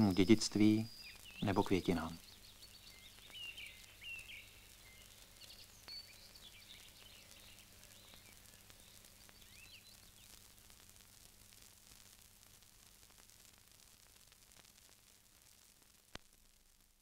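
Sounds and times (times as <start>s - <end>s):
faint birds chirping: 0.0s - 12.2s.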